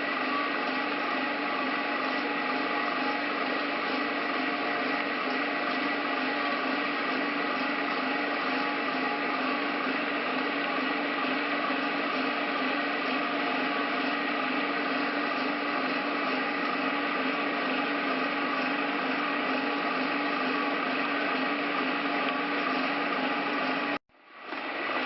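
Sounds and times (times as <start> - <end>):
machine motor humming: 0.0 - 25.0.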